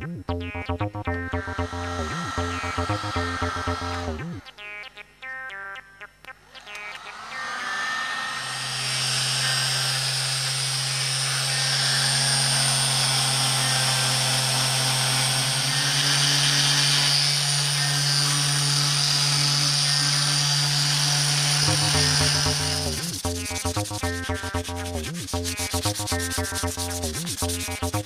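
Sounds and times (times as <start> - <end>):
power tool motor whirring: 7.1 - 22.9.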